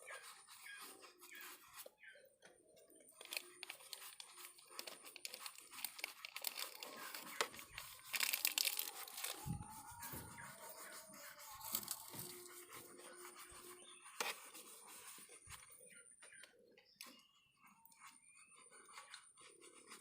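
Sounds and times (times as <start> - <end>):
brush scrubbing engine casing: 3.0 - 15.9.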